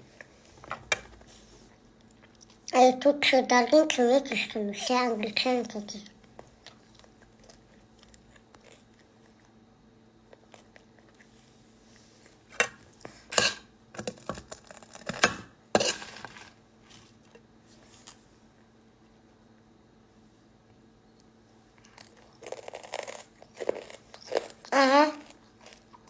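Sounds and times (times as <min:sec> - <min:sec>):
crunchy food being chewed: 0:01.0 - 0:02.7, 0:06.2 - 0:18.3, 0:21.7 - 0:26.0.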